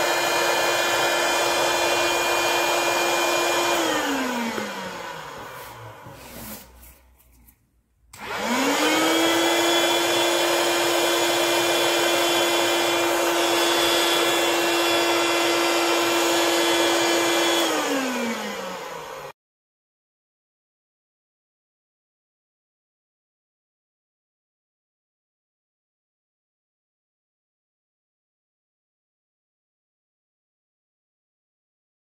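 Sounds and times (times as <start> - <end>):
electric air pump motor whine: 0.0 - 6.8, 8.2 - 19.3.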